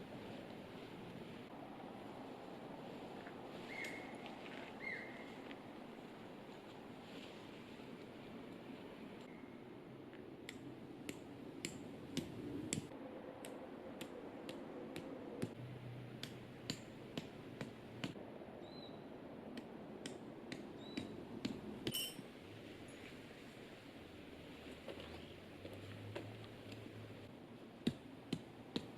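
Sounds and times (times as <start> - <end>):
tent gear clicks and taps: 19.6 - 22.1.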